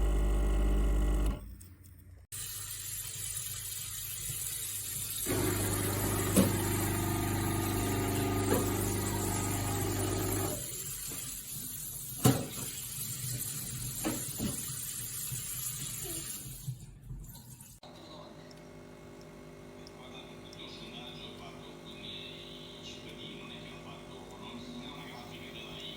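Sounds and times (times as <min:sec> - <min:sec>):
espresso machine pump humming: 0:00.0 - 0:01.4, 0:05.2 - 0:10.8, 0:17.9 - 0:24.5.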